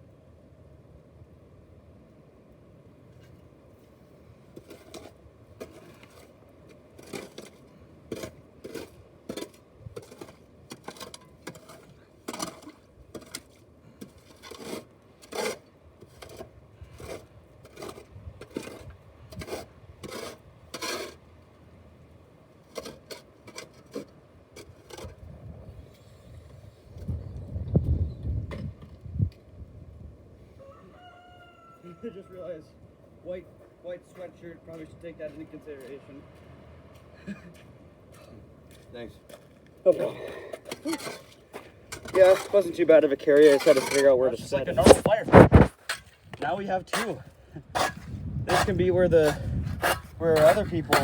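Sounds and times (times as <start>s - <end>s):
footsteps crunching on ground: 34.1s - 40.0s.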